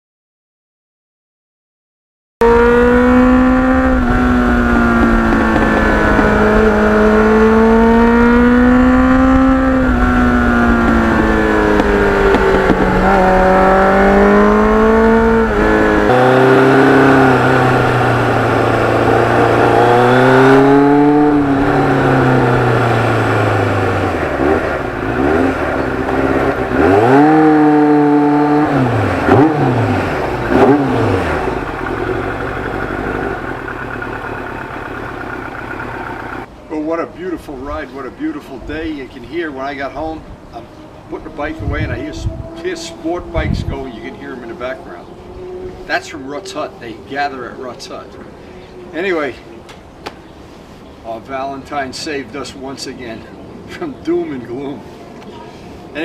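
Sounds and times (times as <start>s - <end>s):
motorcycle engine: 2.4s - 36.5s, 42.1s - 46.8s
wind rush on microphone: 8.2s - 27.6s, 41.3s - 44.0s.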